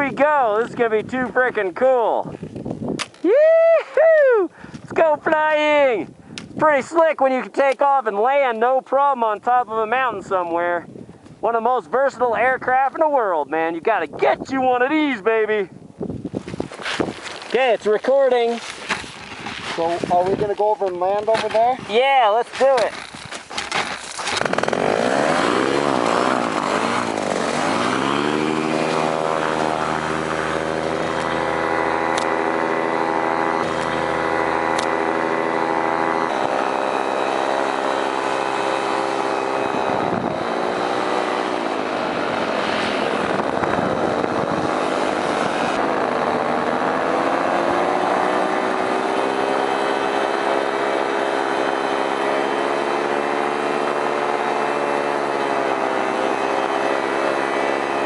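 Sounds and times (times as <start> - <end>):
paramotor engine and propeller: 22.8 - 58.0.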